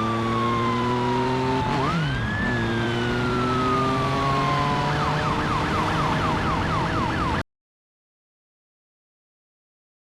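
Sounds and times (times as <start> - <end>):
motorcycle engine drone: 0.0 - 7.4
police siren wailing: 0.0 - 7.4.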